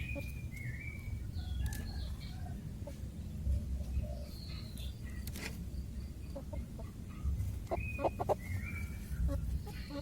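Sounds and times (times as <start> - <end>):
chickens clucking: 0.0 - 10.0
low steady rumble: 0.0 - 10.0
chicken squawks: 7.7 - 8.5.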